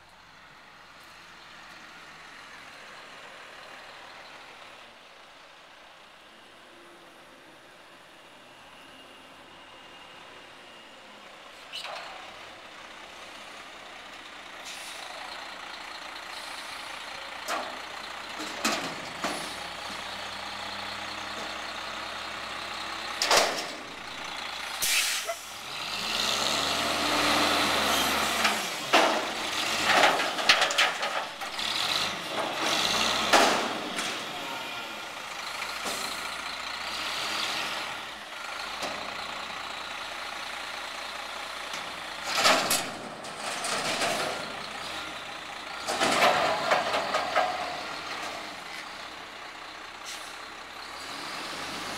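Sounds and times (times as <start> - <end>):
air brake hisses and bangs: 24.8 - 25.5.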